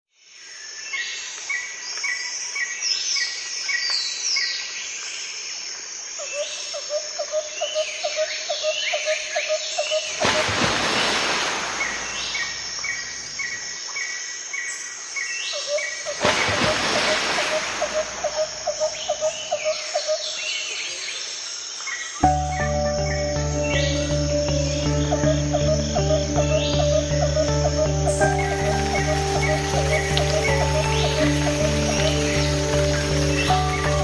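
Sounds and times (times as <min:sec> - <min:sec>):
birds chirping: 0:07.6 - 0:34.0
low repeated bird chirps: 0:11.6 - 0:21.2, 0:22.2 - 0:34.0.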